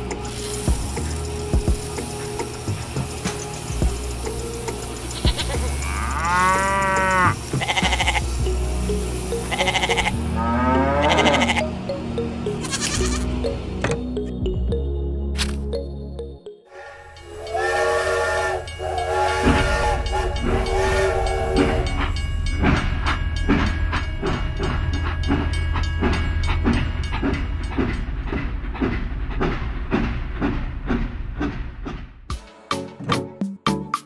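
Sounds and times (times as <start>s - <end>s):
train horn: 9.6s - 11.6s, 16.7s - 22.2s
train wheels clacking over rail joints: 19.0s - 32.3s.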